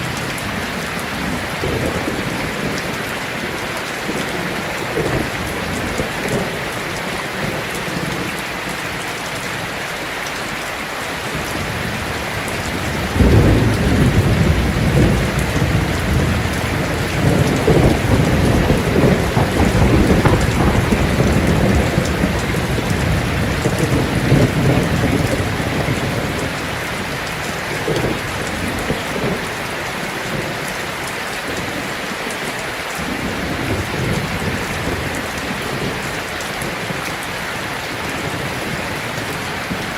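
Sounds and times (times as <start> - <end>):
thunder rumbling: 0.0 - 8.3, 11.3 - 31.9
heavy rain on a tin roof: 0.0 - 39.9.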